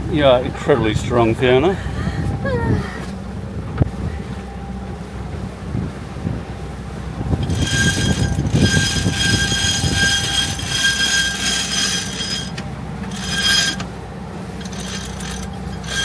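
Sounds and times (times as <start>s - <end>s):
winch squealing being cranked: 7.4s - 16.0s.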